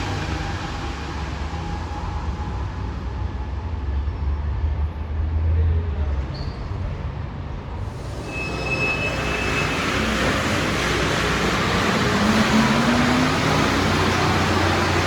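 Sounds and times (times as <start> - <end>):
train running through station: 0.0 - 15.0
thin high squeal: 8.0 - 11.0.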